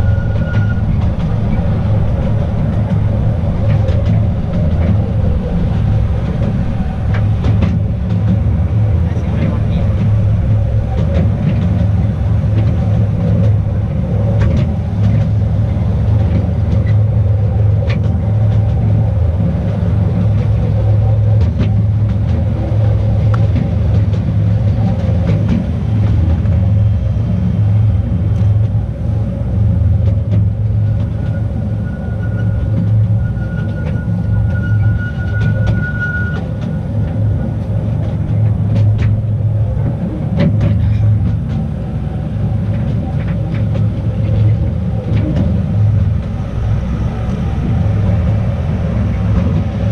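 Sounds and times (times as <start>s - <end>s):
faint thin squeal: 0.0s - 1.6s, 31.2s - 36.9s
train rumbling on track: 0.0s - 49.9s
wheels clicking on rails: 0.0s - 49.9s.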